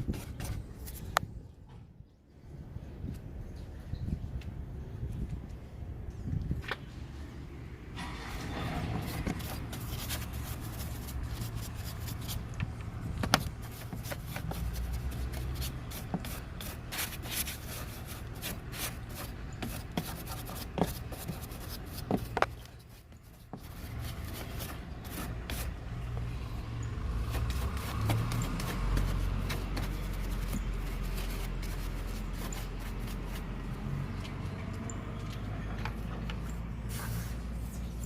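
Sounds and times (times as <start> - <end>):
hand scrubbing and rubbing: 8.0 - 12.6, 13.2 - 26.1, 27.1 - 33.8.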